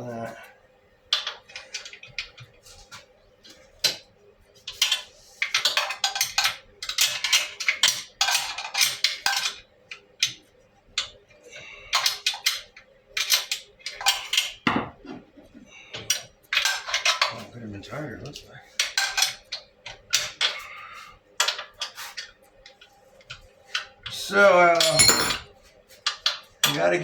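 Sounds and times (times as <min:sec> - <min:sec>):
metal tools clinking: 0:24.8 - 0:25.5.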